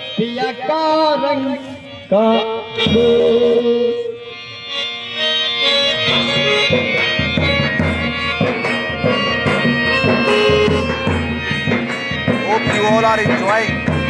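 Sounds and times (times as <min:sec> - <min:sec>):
reedy keyboard melody: 0:00.0 - 0:14.0
hand drum rhythm: 0:06.0 - 0:14.0.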